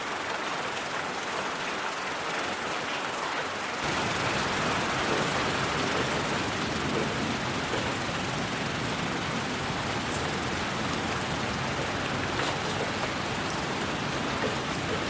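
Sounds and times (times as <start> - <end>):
white noise hiss: 3.6 - 15.0.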